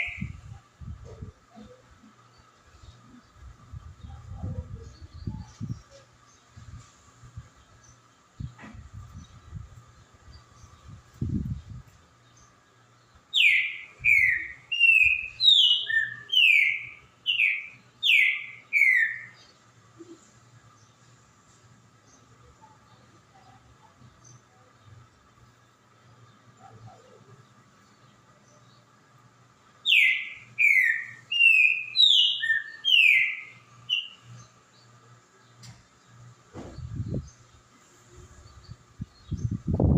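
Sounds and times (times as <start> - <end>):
bird singing whistled notes: 13.3 - 19.4, 29.8 - 34.6.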